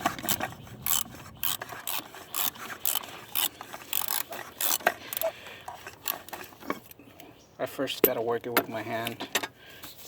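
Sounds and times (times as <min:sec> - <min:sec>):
cap threads scraping: 0:00.0 - 0:06.9.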